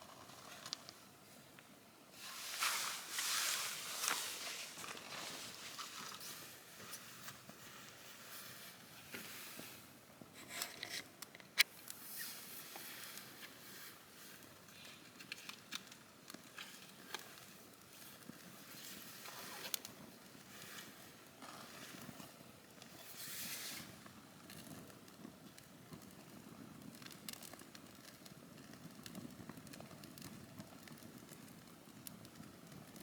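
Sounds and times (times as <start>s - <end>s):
campfire crackles and pops: 24.0s - 33.0s.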